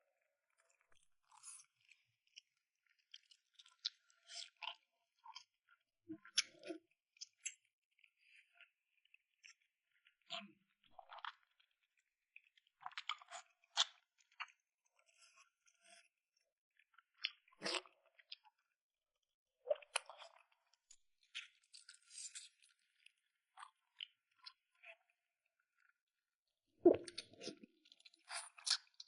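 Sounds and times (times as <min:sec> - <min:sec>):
person chewing food: 0:01.3 - 0:05.5, 0:11.0 - 0:11.9, 0:19.7 - 0:20.5, 0:26.9 - 0:29.0.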